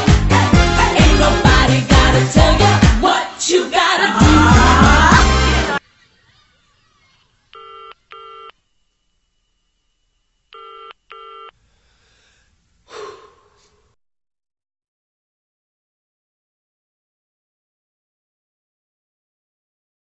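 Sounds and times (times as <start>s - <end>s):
music: 0.0s - 5.8s
telephone ringing: 7.5s - 8.6s, 10.6s - 11.6s
breathy noise: 11.6s - 14.0s.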